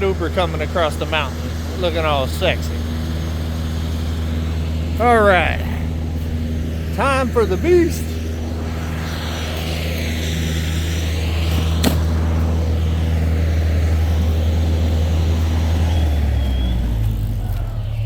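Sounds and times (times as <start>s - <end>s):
engine humming: 0.0s - 18.0s
sharp click: 11.5s - 12.1s.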